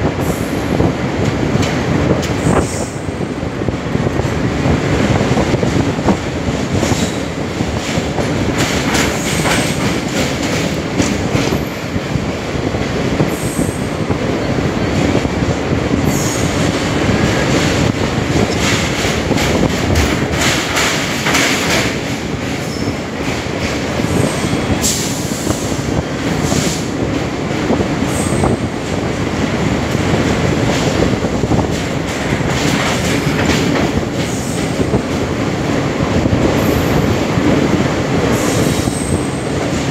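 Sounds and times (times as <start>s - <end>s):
train rumbling on rails: 0.0s - 39.9s.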